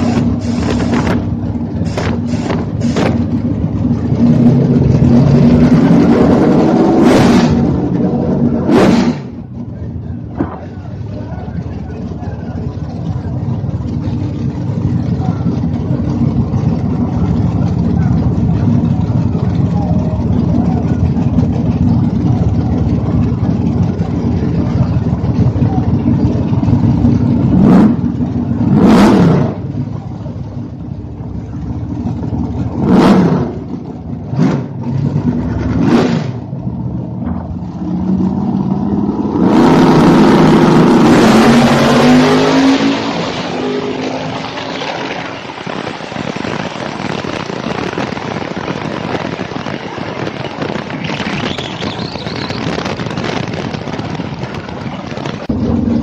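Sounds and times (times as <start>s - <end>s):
race car engine revving: 0.0s - 56.0s
wind noise: 45.5s - 55.5s.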